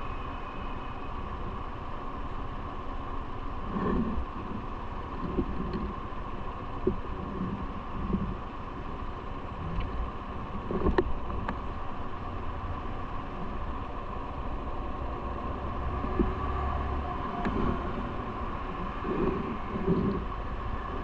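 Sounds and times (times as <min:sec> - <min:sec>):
bike road rumble: 0:00.0 - 0:21.0
wind noise: 0:03.6 - 0:12.2, 0:14.9 - 0:21.0.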